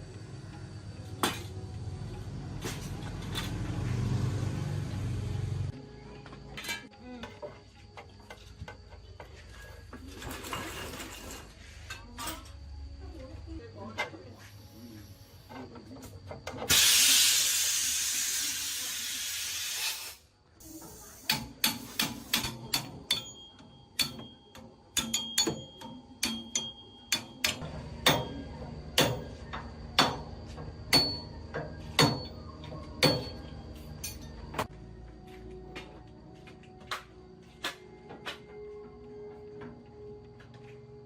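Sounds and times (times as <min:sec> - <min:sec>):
hiss of escaping air: 0:16.7 - 0:22.4
hand tools knocking on metal: 0:21.3 - 0:34.7.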